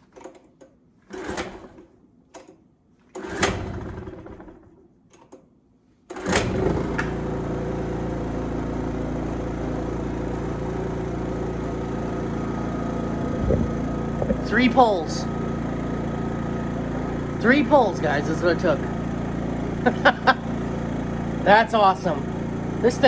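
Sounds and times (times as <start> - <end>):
generator engine running: 3.2 - 4.7, 6.2 - 23.0.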